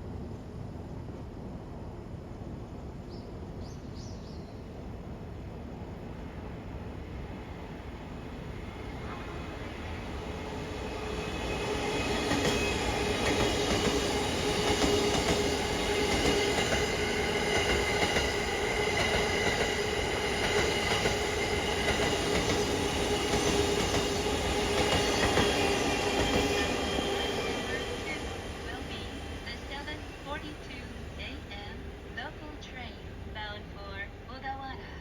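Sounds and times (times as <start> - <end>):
train whine: 0.0 - 35.0
train wheels clattering: 11.0 - 27.6.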